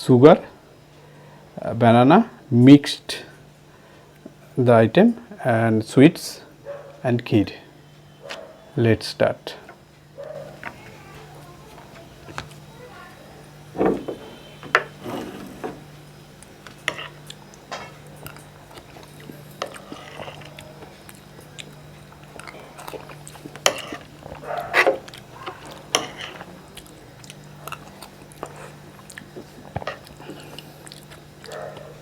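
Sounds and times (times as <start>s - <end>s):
steady low hum: 0.0s - 32.0s
chewing and slurping: 16.6s - 31.9s.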